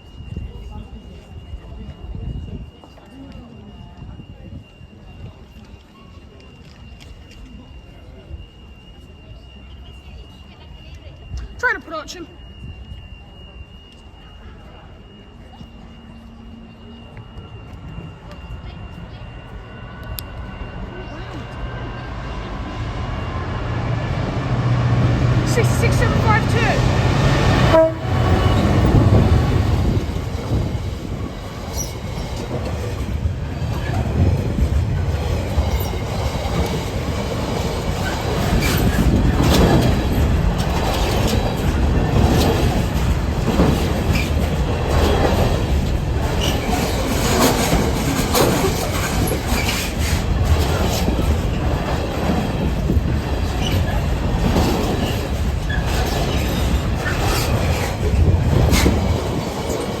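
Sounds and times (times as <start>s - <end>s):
freight train rumbling: 0.0s - 60.0s
wagon wheels clacking on rail joints: 25.1s - 60.0s.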